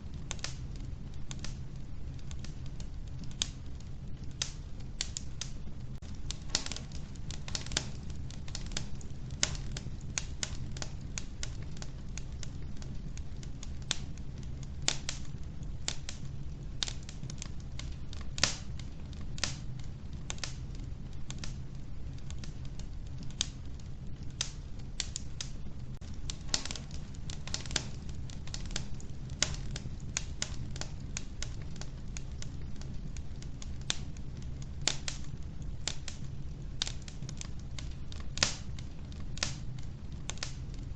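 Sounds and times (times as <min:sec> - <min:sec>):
fire rumbling: 0:00.0 - 0:40.9
logs crackling and popping: 0:00.0 - 0:40.9.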